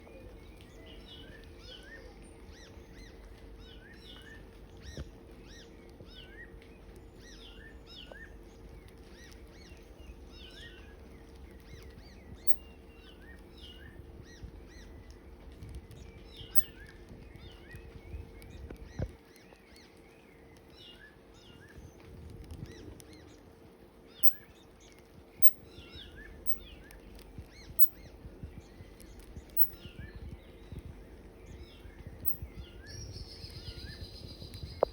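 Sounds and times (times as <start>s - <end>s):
low rumble and hum: 0.0s - 34.9s
animal chirping calls: 24.2s - 24.4s, 25.4s - 25.7s, 26.5s - 26.7s, 27.8s - 28.0s, 29.6s - 29.8s.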